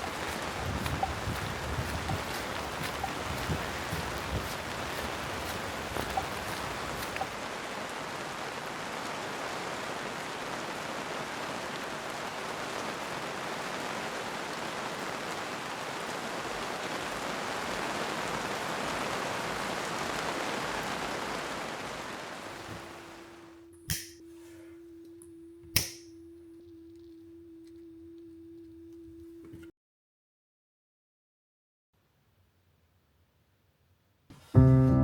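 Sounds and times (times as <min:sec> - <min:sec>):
raindrop ticks: 0:00.0 - 0:21.6, 0:25.0 - 0:29.7
heavy rain hissing: 0:00.0 - 0:25.0.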